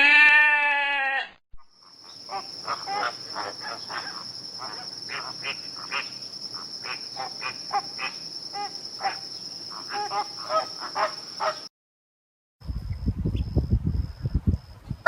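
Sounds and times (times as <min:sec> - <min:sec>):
insect trill: 0:01.6 - 0:11.7.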